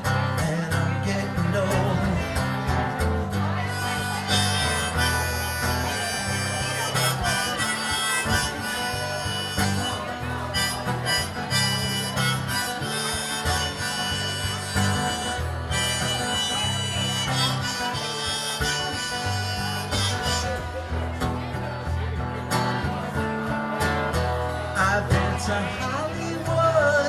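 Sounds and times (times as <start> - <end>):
bass and guitar accompaniment: 0.0 - 27.0
harmonica solo: 3.4 - 21.7.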